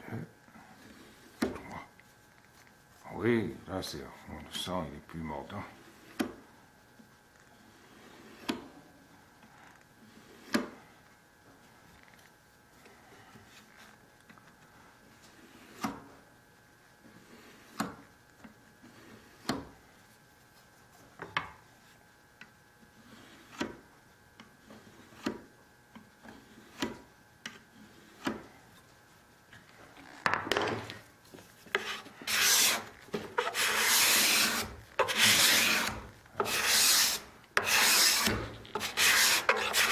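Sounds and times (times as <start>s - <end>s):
cabinet scraper scraping wood: 7.6s - 8.6s, 15.3s - 16.0s, 23.0s - 23.8s, 24.6s - 25.5s, 26.2s - 28.5s, 31.6s - 39.9s.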